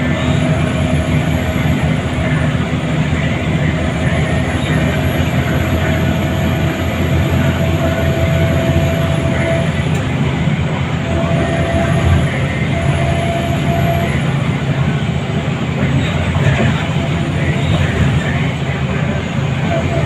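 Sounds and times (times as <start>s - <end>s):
bus diesel engine running: 0.0s - 20.0s
road noise: 0.0s - 20.0s
steady whine: 0.0s - 20.0s
faint high whine: 10.9s - 20.0s.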